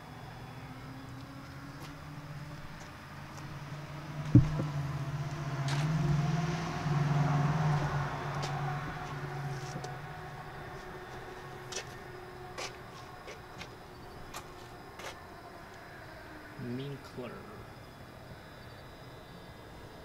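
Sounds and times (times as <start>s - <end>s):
car engine hum: 0.0s - 15.0s.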